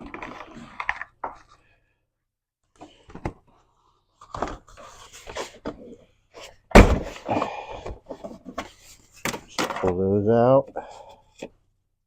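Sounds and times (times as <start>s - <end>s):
loud thump: 6.7s - 7.2s.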